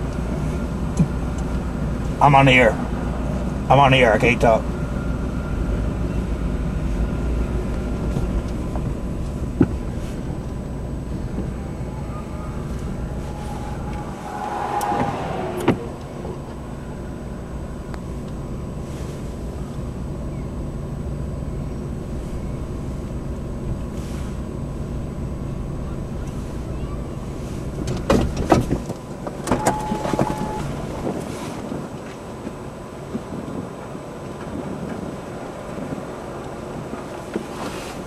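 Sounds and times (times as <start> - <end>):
motor vehicle rumble: 0.0 - 38.0.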